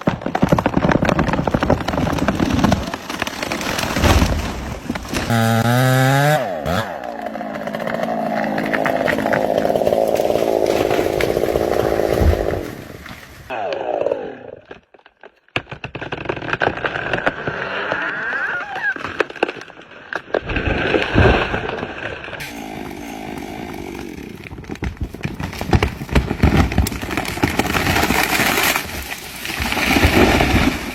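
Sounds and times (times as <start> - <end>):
wood cracking and snapping: 0.0 - 13.5, 14.7 - 18.0, 18.6 - 30.9
chainsaw cutting wood: 0.5 - 13.5, 22.4 - 30.9.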